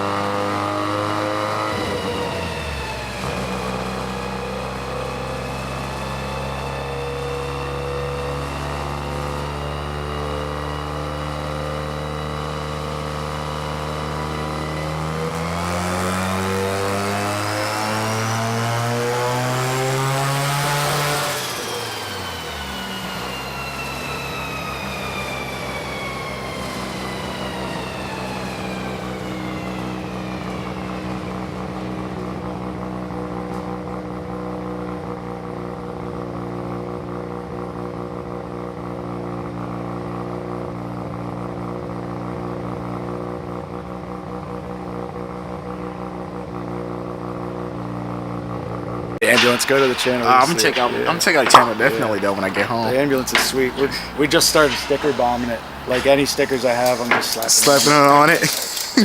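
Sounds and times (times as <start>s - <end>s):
dyno rollers winding down: 0.0s - 35.6s, 49.2s - 59.0s
car engine revving: 0.0s - 36.2s, 49.2s - 59.0s.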